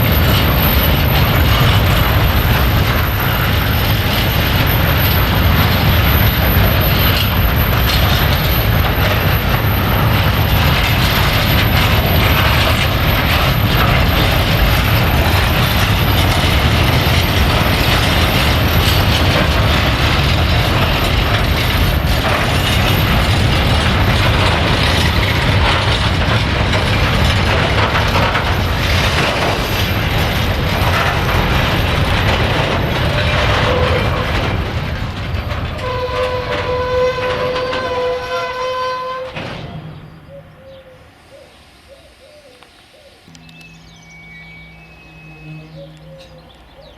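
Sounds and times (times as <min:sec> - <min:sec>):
train wheels rumbling on rail: 0:00.0 - 0:46.9
wagon couplings rattling: 0:43.3 - 0:46.9.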